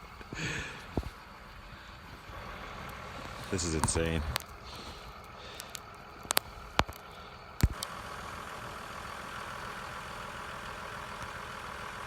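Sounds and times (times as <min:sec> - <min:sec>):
vehicle engine idling: 0:00.0 - 0:12.0
sharp clicks: 0:02.8 - 0:07.9.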